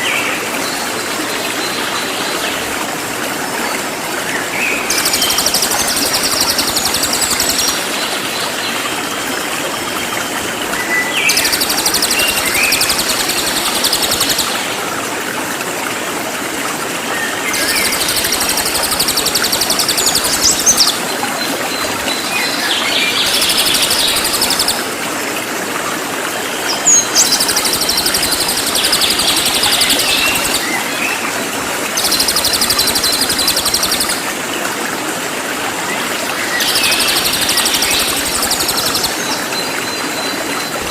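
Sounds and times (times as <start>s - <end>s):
rushing water: 0.0s - 40.9s
bird singing high-pitched song: 21.7s - 24.8s, 26.7s - 30.8s, 32.0s - 34.2s, 36.6s - 40.3s.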